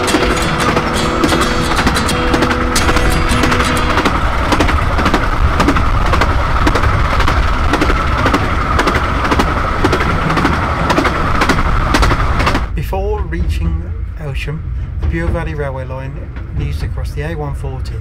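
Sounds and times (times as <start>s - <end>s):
wheel clicks on track: 0.0s - 12.7s
train wheels rumbling and rattling: 0.0s - 18.0s.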